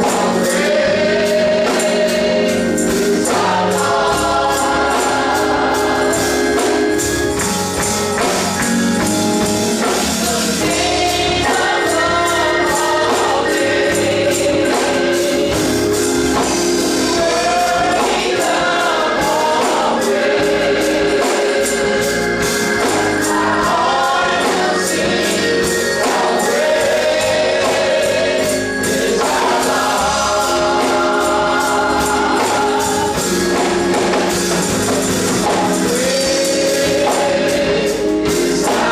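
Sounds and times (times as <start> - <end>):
gospel choir singing: 0.0 - 38.9
instrumental accompaniment: 0.0 - 38.9.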